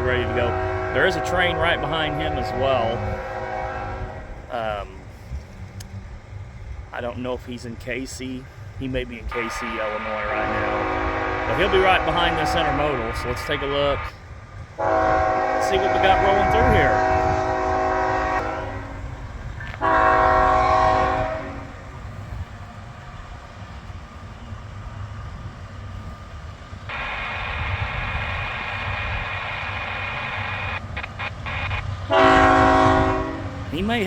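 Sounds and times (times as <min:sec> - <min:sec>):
locomotive air horn blasts: 0:00.0 - 0:04.4, 0:09.4 - 0:14.1, 0:14.8 - 0:21.9, 0:31.5 - 0:34.0
passing train rumble: 0:00.0 - 0:34.0.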